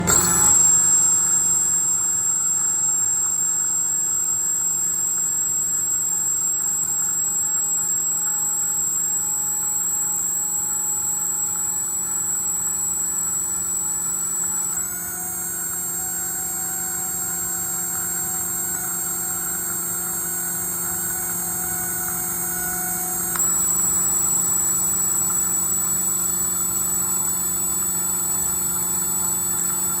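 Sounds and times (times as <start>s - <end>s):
hydraulic motor whining: 0.0s - 30.0s
low hum: 0.0s - 30.0s.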